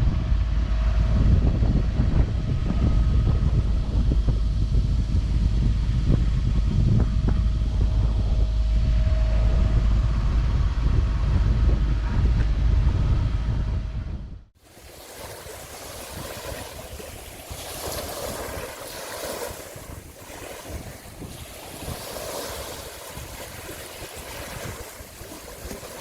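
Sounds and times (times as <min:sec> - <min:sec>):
wind on microphone: 0:00.0 - 0:26.0
waves washing: 0:14.6 - 0:26.0.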